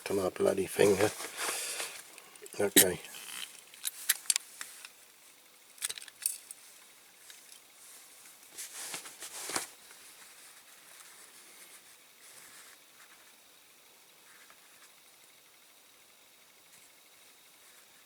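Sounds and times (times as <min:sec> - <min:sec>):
scraping rustle: 0:00.8 - 0:04.8, 0:07.8 - 0:13.2
clicks and clinks of small parts: 0:02.4 - 0:05.0, 0:05.8 - 0:06.6.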